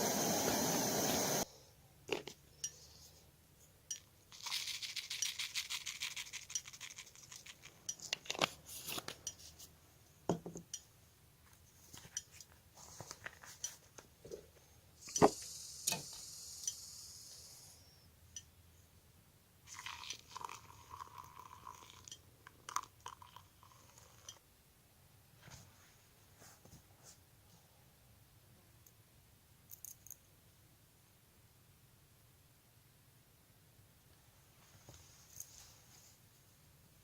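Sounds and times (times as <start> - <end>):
steady hiss: 0.0 - 1.5, 15.0 - 18.0
small clicks and clinks: 3.9 - 4.1, 29.7 - 30.3.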